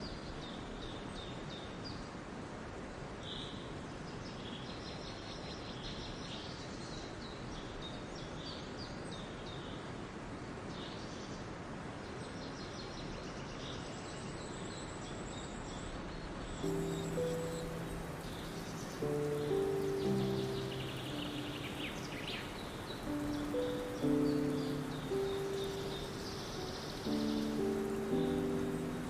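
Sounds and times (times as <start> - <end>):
steady background hiss: 0.0 - 29.0
small birds chirping: 12.3 - 29.0.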